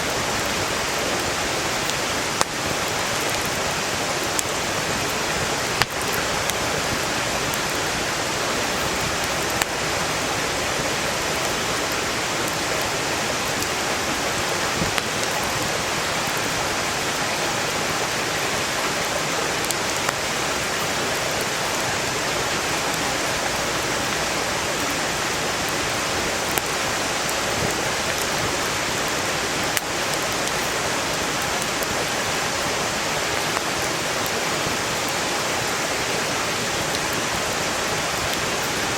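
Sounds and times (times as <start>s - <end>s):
stream rushing: 0.0s - 38.9s
firewood popping: 4.3s - 7.7s.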